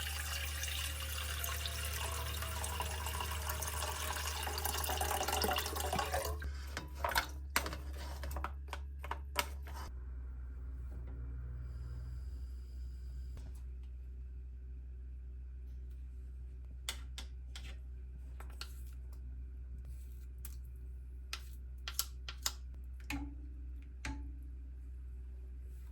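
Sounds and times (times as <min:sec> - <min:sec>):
tap running water into sink: 0:00.0 - 0:07.3.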